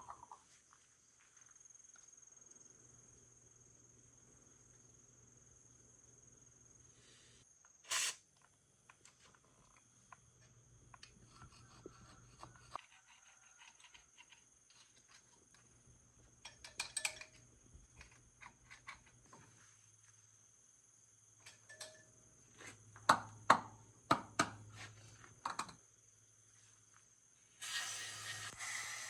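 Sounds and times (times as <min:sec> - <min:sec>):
clicks and knocks of tools handled: 0:16.4 - 0:19.4, 0:21.4 - 0:22.1.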